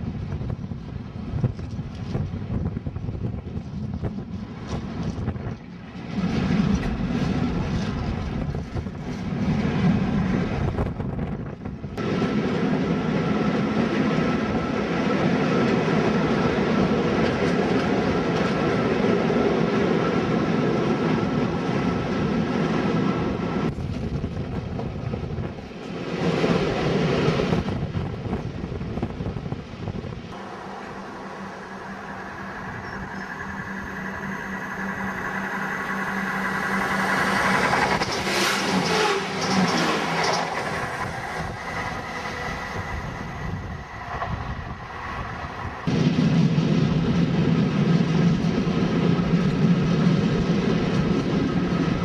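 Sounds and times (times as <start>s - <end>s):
train wheel and wind noise: 0.0s - 52.0s
steady low hum: 30.2s - 38.0s
faint steady whine: 30.3s - 37.4s.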